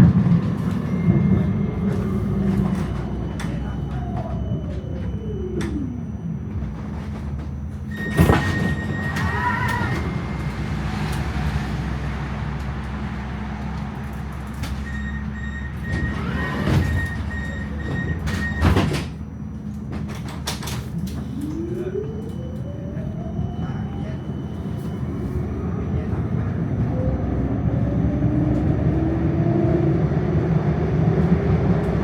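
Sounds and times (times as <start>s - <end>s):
beeping warning tone: 0.0s - 12.1s, 14.6s - 19.6s, 21.0s - 27.9s
tram doors thudding: 0.0s - 29.4s
traction motors whining: 0.0s - 32.0s.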